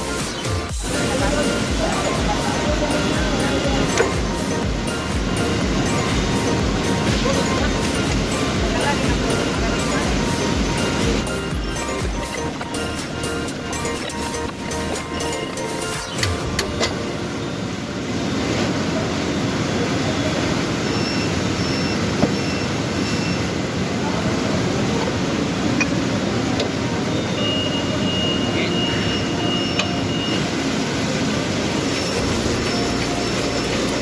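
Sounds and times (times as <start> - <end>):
thin high tone: 0.0 - 18.2, 25.7 - 34.0
machine running: 0.0 - 34.0.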